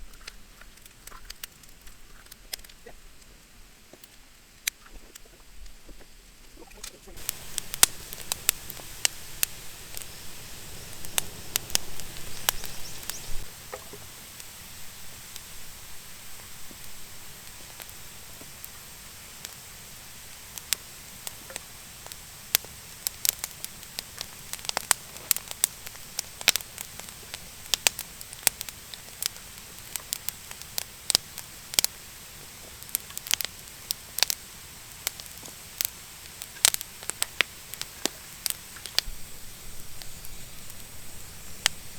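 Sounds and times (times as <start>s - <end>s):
wood fire crackling and popping: 0.0s - 5.8s, 6.6s - 41.9s
low hiss: 0.0s - 41.9s.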